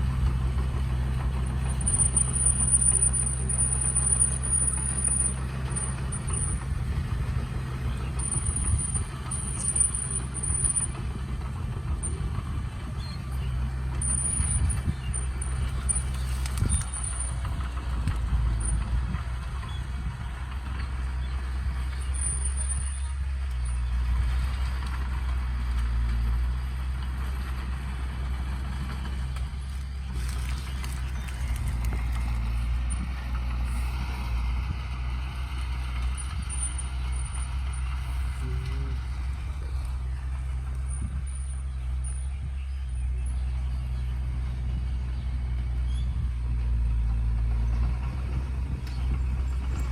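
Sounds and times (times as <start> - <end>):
diesel machinery engine drone: 0.0 - 49.9.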